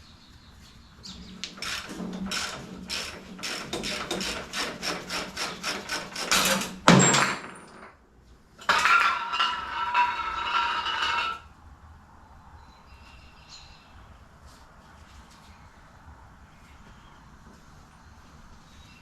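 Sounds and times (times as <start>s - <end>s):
hand tool clicking on metal: 1.4s - 6.8s.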